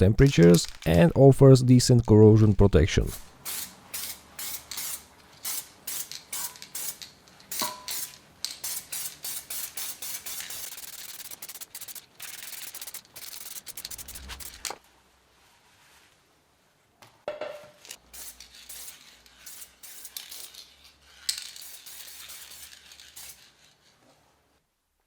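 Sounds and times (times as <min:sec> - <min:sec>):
wire brush scraping steel: 0:03.6 - 0:14.8.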